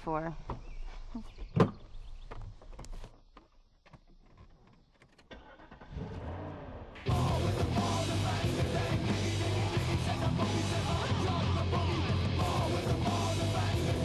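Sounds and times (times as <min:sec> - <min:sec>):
car engine starting and running: 0:05.2 - 0:14.0
rock guitar music: 0:07.0 - 0:14.0.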